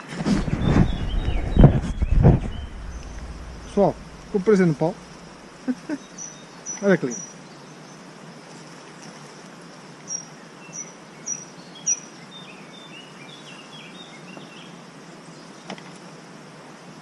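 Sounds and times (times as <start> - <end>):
steady background hiss: 0.5 - 8.6.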